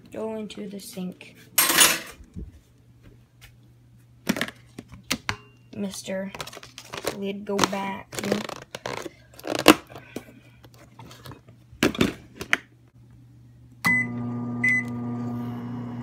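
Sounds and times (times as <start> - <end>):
microwave oven humming: 12.9 - 16.0
microwave keypad beep: 13.9 - 15.0.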